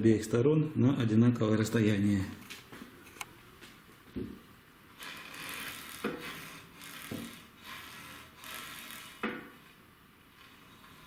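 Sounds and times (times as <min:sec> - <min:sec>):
rasping rubbing noise: 0:05.0 - 0:09.6, 0:10.3 - 0:11.0.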